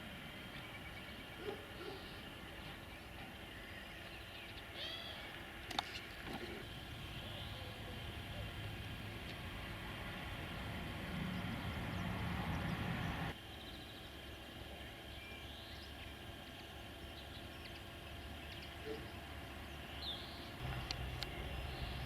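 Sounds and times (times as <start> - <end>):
low rumble with humming tones: 0.0 - 22.0
bird chirps: 6.6 - 8.6, 10.4 - 22.0.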